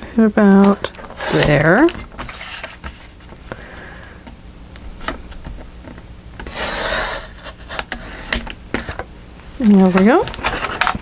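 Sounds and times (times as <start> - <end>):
scissors rasping through paper: 0.6 - 2.8
paper being cut: 1.1 - 1.7, 6.5 - 8.4.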